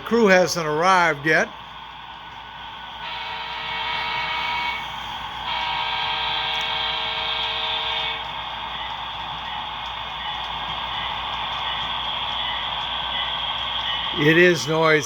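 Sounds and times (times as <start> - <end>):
model train horn blasts: 3.0 - 8.3.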